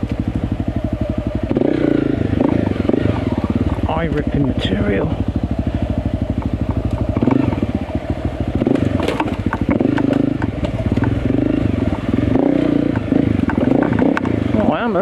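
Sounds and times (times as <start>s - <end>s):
motorcycle engine revving: 0.0s - 15.0s
sharp clicks and knocks: 8.7s - 11.2s, 12.8s - 14.4s.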